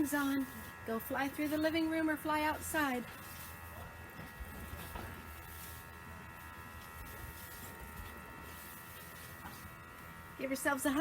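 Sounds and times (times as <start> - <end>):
steady hum and buzz: 0.0 - 11.0.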